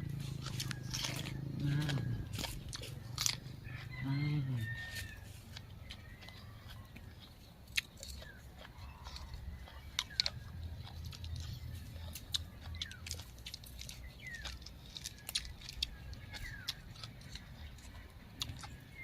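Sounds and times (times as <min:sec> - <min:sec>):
chewing crunchy vegetables: 0:00.0 - 0:19.0
bird chirps: 0:04.6 - 0:19.0.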